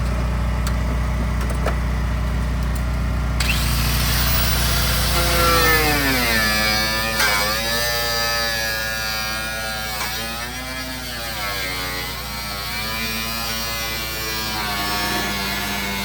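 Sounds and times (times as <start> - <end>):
electric power tool motor whine: 3.3 - 16.0.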